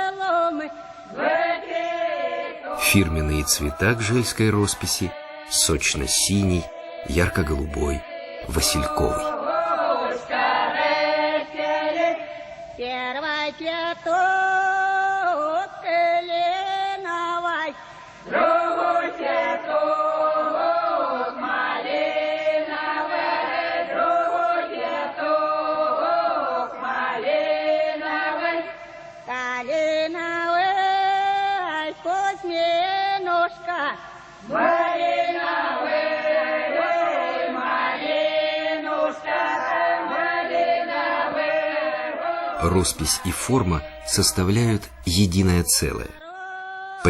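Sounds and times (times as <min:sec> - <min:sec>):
choir singing: 0:00.0 - 0:12.6, 0:18.2 - 0:28.9, 0:34.4 - 0:46.1.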